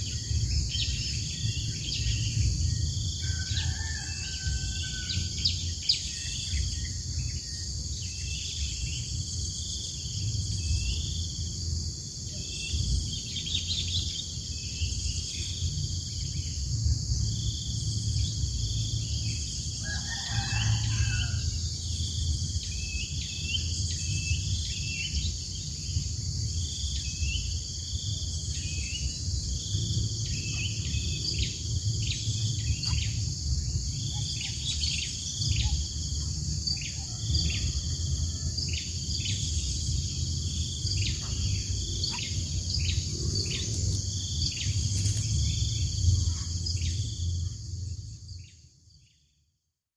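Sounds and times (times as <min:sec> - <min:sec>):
insect chorus: 0:00.0 - 0:49.6
distant rooster crowing: 0:03.0 - 0:06.0, 0:19.1 - 0:21.9, 0:35.3 - 0:39.3
low rumble: 0:21.4 - 0:48.4.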